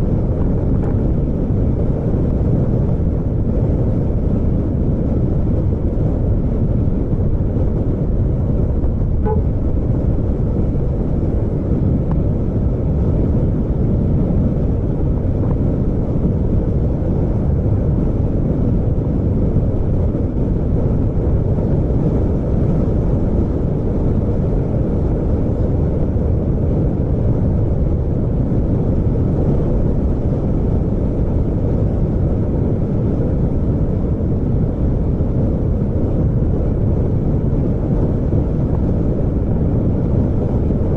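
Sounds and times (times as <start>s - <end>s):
vehicle rumbling on the move: 0.0s - 40.9s.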